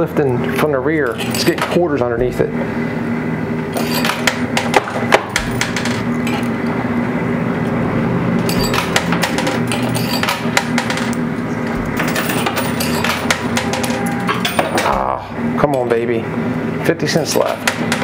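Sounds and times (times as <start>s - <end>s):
coins clinking on metal: 1.1s - 1.8s, 3.8s - 4.7s, 8.4s - 11.2s, 11.8s - 15.0s.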